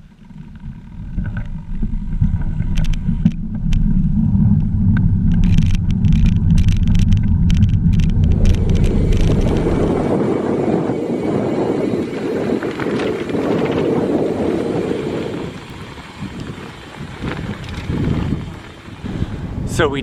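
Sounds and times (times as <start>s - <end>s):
crackles: 0.0s - 10.5s, 12.1s - 19.3s
wind and road noise: 0.0s - 20.0s
hissy rushing noise: 8.0s - 12.6s.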